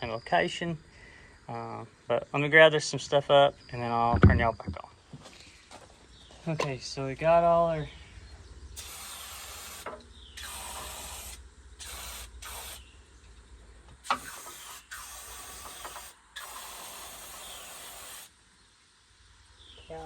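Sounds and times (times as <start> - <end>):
aerosol spray hissing: 8.8 - 12.9, 14.0 - 18.4.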